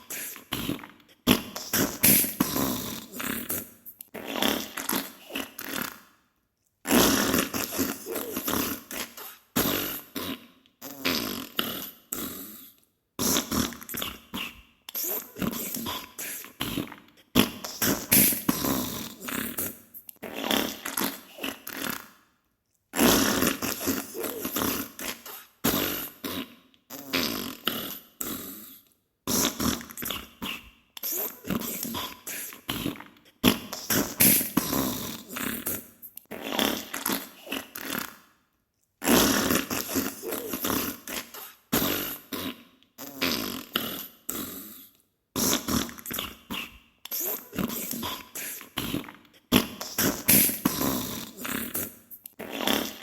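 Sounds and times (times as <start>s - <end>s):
wet spluttering fart sounds: 48.8s - 53.0s.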